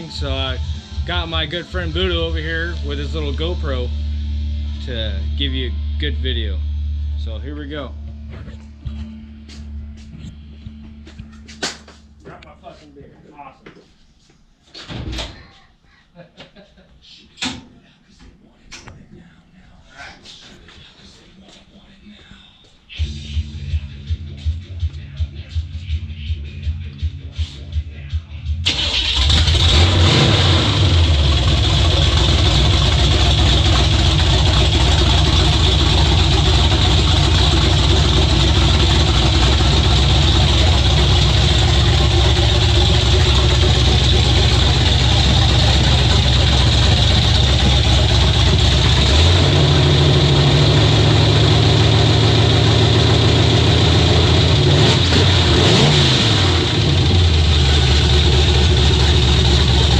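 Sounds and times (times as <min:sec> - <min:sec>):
truck engine running: 0:00.0 - 0:07.5, 0:28.6 - 0:59.9.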